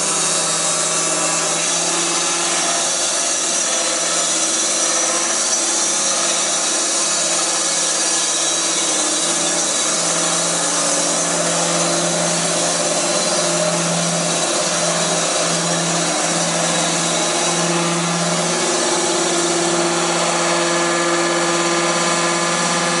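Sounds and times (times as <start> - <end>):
sawmill sawing wood: 0.0 - 23.0
machine hum: 4.7 - 23.0.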